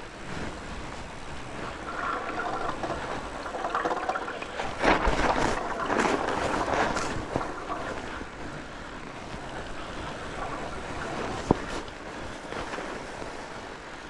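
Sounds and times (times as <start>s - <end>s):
bike tyres rushing on trail: 0.0s - 14.0s
wind rushing over microphone: 0.0s - 14.0s.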